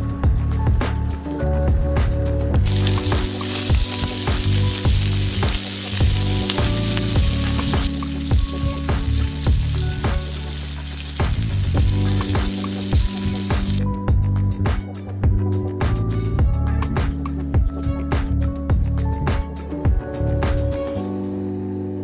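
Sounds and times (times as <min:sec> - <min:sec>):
background music: 0:00.0 - 0:22.0
food sizzling in a pan: 0:02.6 - 0:13.8.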